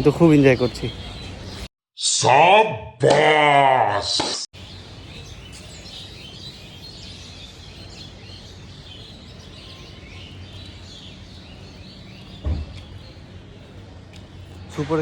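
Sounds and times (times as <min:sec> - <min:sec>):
birds chirping: 0:00.0 - 0:01.7, 0:04.6 - 0:15.0
steady low hum: 0:04.6 - 0:14.8
low thump: 0:12.4 - 0:12.8.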